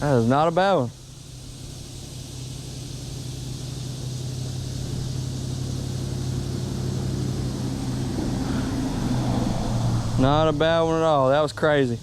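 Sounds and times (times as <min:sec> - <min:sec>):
vehicle engine hum approaching: 0:01.2 - 0:12.0.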